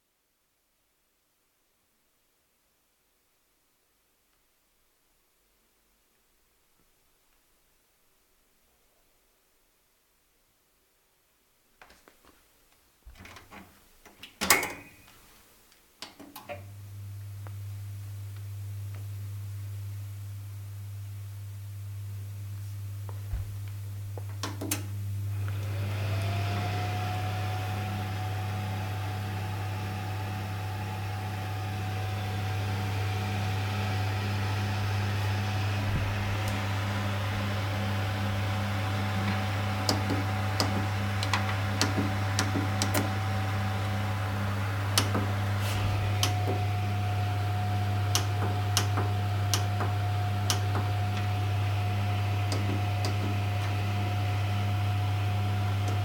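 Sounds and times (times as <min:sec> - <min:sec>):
low electrical hum: 0:00.0 - 0:56.0
fan heater whine: 0:16.4 - 0:56.0
fireplace switch click: 0:46.2 - 0:46.6.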